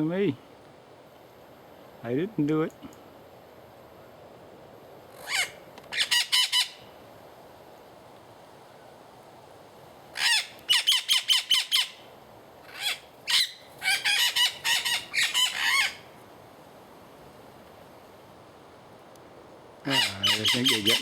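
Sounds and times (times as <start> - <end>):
parrots squawking: 5.2 - 6.8, 10.2 - 12.0, 12.7 - 16.1, 19.8 - 21.0.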